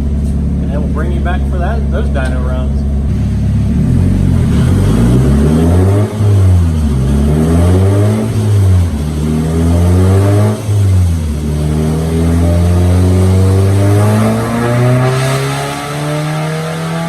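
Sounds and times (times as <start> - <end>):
car engine revving on dyno: 0.0 - 17.0.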